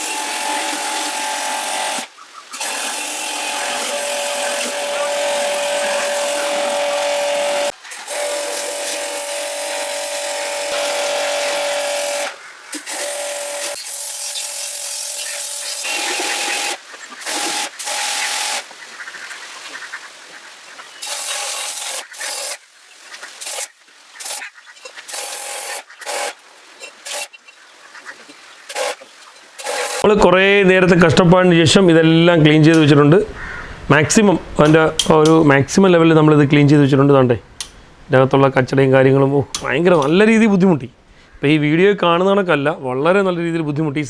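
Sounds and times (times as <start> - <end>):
pressure washer motor whine: 0.0 - 18.6, 29.6 - 30.1.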